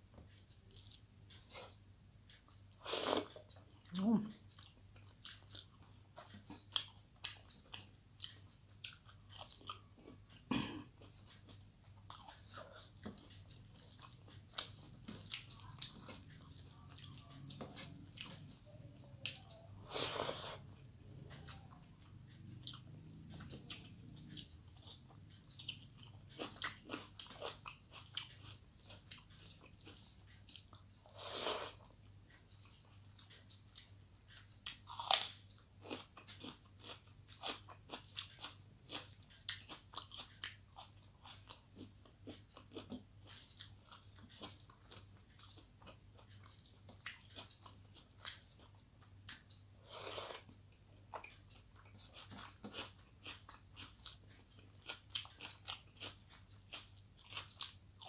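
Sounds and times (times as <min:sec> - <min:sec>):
faint low hum: 0:00.0 - 0:58.0
person chewing food: 0:00.1 - 0:58.0.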